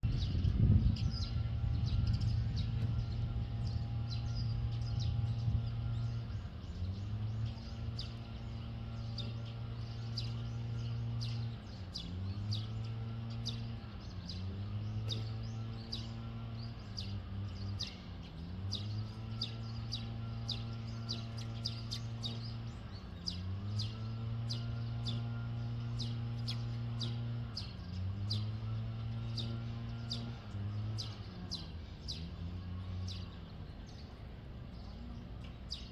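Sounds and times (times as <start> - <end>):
small birds chirping: 0.0 - 35.9
steady low hum: 0.0 - 35.9.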